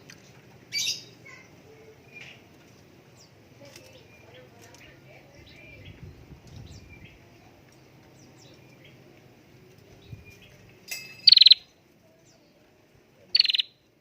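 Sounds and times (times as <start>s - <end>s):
bird rattling trill: 10.4s - 11.7s, 13.3s - 13.7s
faint small bird chirps: 11.2s - 12.6s, 13.2s - 13.9s.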